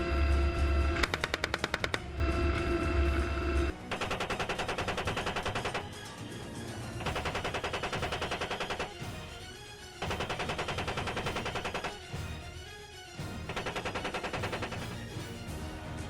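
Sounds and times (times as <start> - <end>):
background music: 0.0 - 16.0
chain gun firing rapidly: 3.9 - 6.1, 7.0 - 9.1, 10.0 - 12.2, 13.5 - 15.1.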